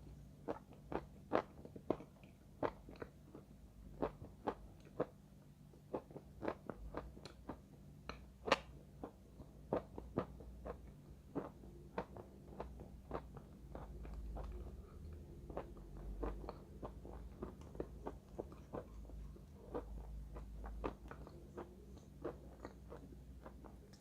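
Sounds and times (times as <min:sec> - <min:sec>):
chalk crunching while chewed: 0:05.9 - 0:24.0.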